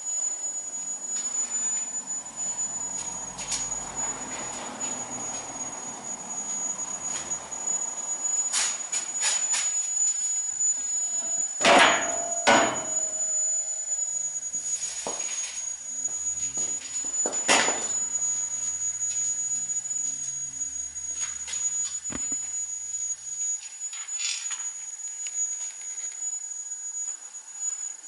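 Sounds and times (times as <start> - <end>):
high-pitched whine: 0.0 - 28.0
metallic ringing: 11.6 - 14.0.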